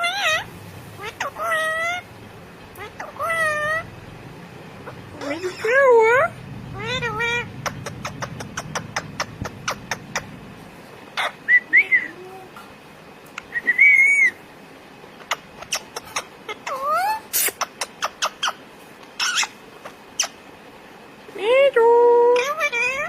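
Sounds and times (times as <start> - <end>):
parrot whistling: 11.2 - 12.2, 13.5 - 14.4.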